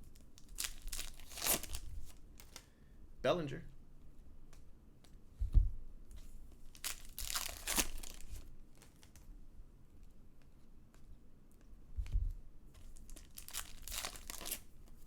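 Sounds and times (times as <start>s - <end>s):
foil wrapper tearing and crinkling: 0.1s - 2.6s, 6.7s - 9.2s, 12.9s - 14.7s.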